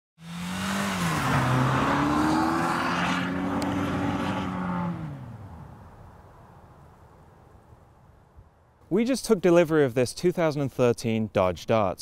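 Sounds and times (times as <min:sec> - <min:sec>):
car engine revving hard: 0:00.2 - 0:05.4.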